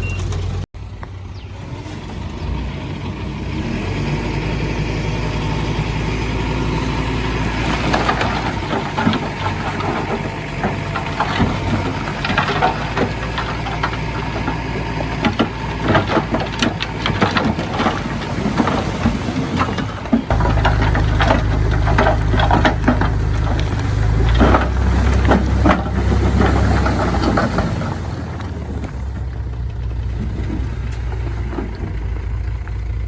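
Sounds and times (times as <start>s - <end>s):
heavy diesel machinery running: 0.0s - 33.0s
metallic clanks and rattles: 6.8s - 33.0s.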